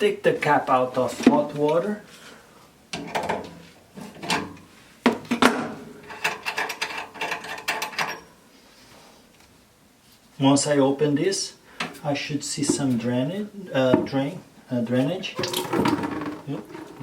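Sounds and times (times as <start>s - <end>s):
valve caps being unscrewed: 15.4s - 17.0s.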